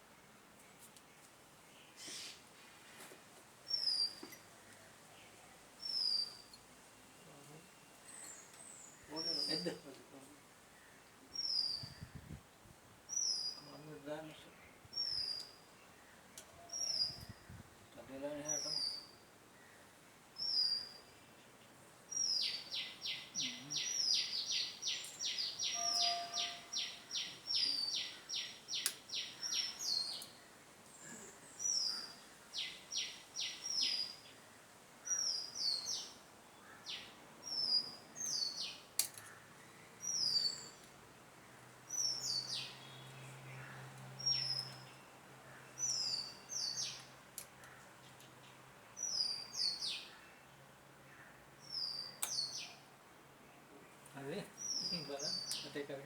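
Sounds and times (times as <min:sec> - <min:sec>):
bird calling: 0:22.3 - 0:30.4
faint sharp clicks: 0:28.8 - 0:29.1, 0:39.0 - 0:39.4.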